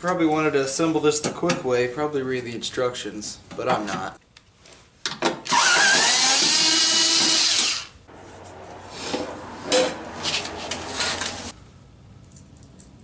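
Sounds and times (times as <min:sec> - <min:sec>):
power drill whining: 0:05.5 - 0:08.0
handling noises: 0:08.1 - 0:11.6.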